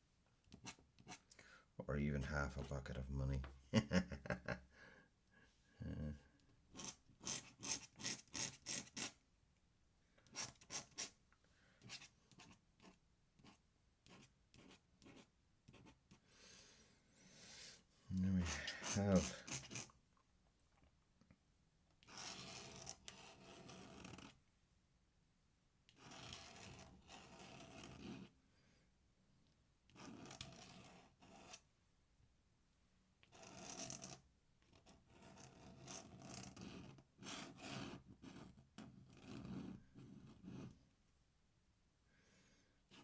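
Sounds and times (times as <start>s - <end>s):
pen scratching on paper: 0.5s - 1.3s, 6.7s - 9.2s, 10.3s - 11.2s, 11.8s - 16.2s, 18.4s - 19.9s, 22.0s - 24.4s, 25.9s - 28.4s, 29.9s - 31.7s, 33.2s - 40.8s.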